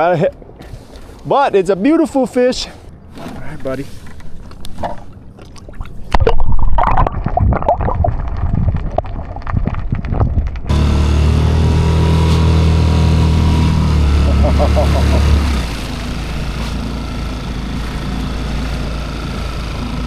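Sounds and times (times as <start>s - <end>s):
water splashing against boat: 0.0s - 20.0s
outboard motor running: 10.7s - 20.0s.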